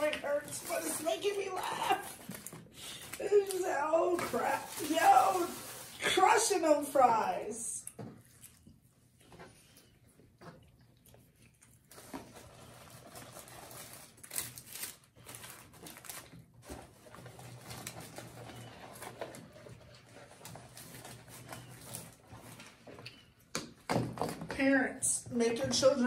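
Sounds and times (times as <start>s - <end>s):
chewing clicks and smacks: 10.4s - 11.9s.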